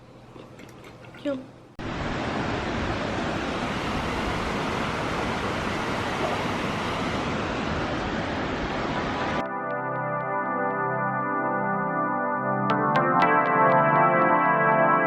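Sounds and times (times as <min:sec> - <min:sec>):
steady rushing noise: 0:01.8 - 0:09.5.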